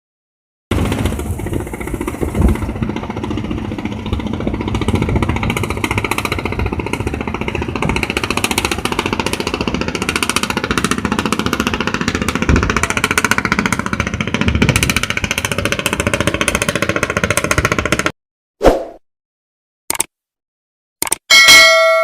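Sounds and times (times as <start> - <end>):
boat engine chugging: 0.7 - 18.1.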